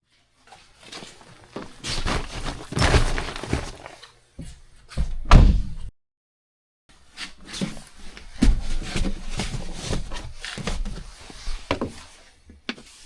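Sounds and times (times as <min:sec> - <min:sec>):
heavy thumps and knocks: 0:11.7 - 0:12.0.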